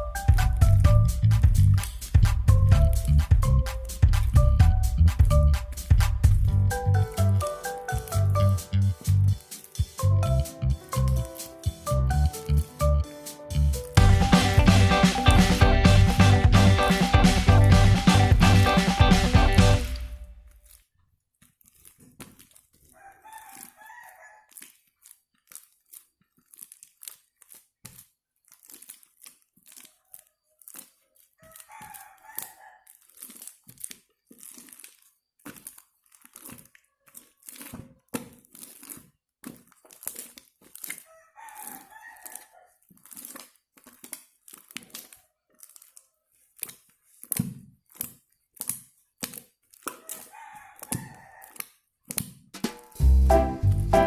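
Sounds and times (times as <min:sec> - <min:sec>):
slime squeezed by hand: 0:21.4 - 0:54.0
rooster crowing: 0:23.0 - 0:24.5, 0:31.4 - 0:32.8, 0:41.1 - 0:42.8, 0:50.0 - 0:51.6.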